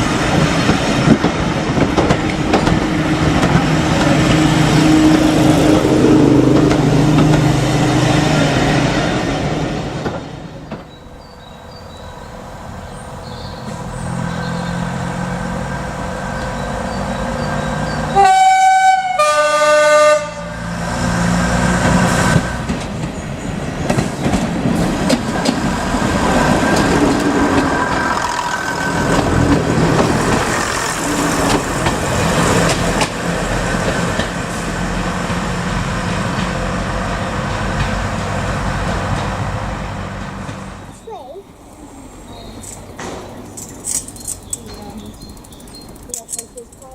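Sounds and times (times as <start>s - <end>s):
train running: 0.0s - 46.9s
two-note train horn: 18.2s - 20.7s.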